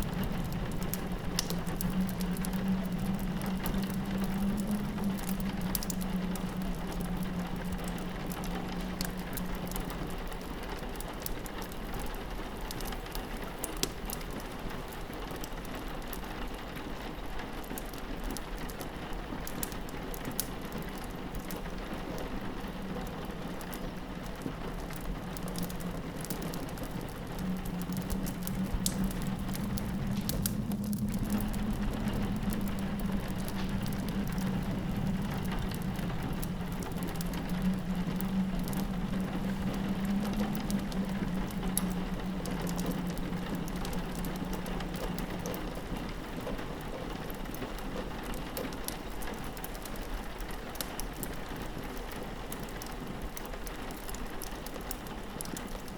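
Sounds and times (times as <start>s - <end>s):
log fire crackling: 0.0s - 55.9s
rain pattering on window: 0.0s - 55.9s
low drone: 24.8s - 46.6s.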